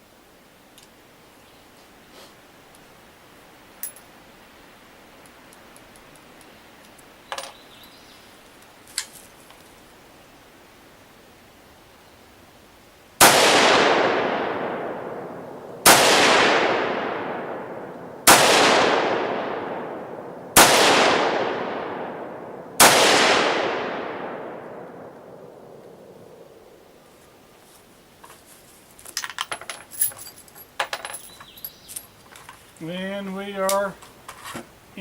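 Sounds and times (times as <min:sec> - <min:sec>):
rifle shots with echo: 0:13.2 - 0:26.7.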